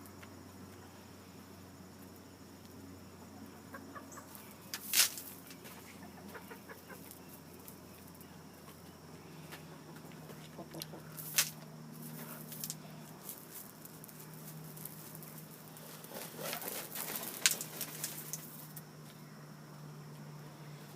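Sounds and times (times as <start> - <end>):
chickens pecking the ground: 1.8 - 19.2.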